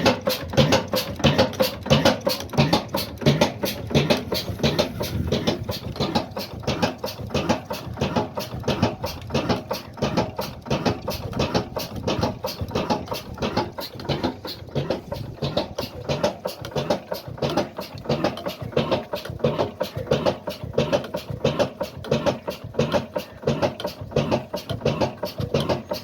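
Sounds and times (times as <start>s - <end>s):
diesel engine running steadily: 0.0s - 26.0s.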